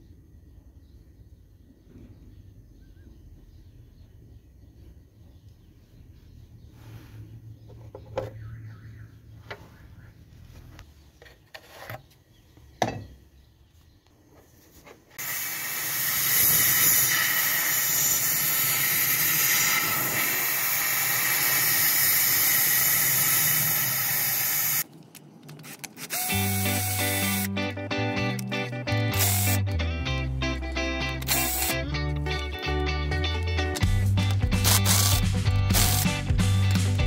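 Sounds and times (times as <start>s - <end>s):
pressurised air jet hissing: 15.2s - 24.8s
guitar music: 26.3s - 37.0s.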